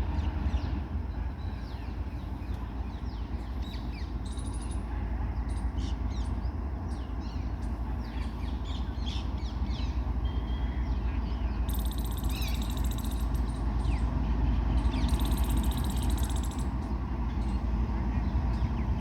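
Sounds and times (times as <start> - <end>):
train wheels rumbling on rails: 0.0 - 19.0
birds chirping: 6.2 - 14.1.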